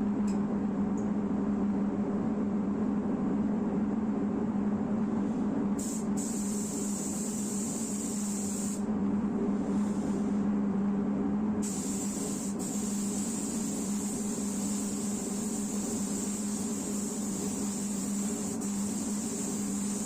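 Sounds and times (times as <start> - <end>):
low hum of equipment: 0.0 - 20.0
spray gun hissing: 5.8 - 8.8, 11.6 - 20.0.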